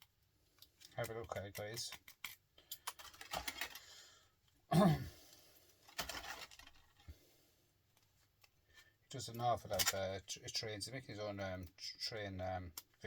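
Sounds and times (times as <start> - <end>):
small scrap parts rattling: 0.6 - 3.8, 5.8 - 7.1, 9.7 - 10.1.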